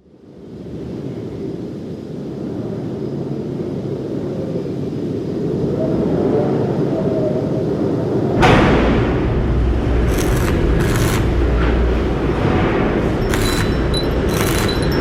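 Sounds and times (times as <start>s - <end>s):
low steady rumble: 8.9s - 15.0s.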